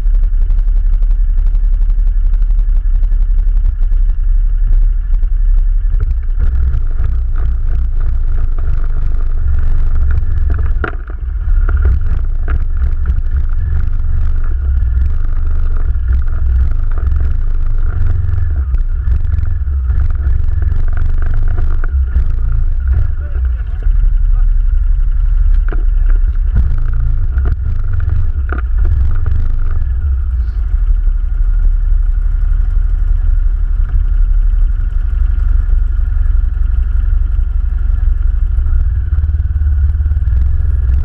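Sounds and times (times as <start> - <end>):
atv engine rumbling: 0.0 - 41.0
rattling and clattering: 5.9 - 30.8.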